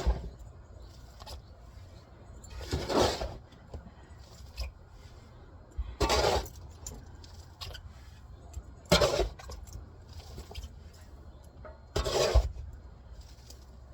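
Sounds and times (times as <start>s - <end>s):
sawdust scraped from truck bed: 0.0s - 3.6s, 6.0s - 8.3s, 8.9s - 11.0s, 11.9s - 13.9s.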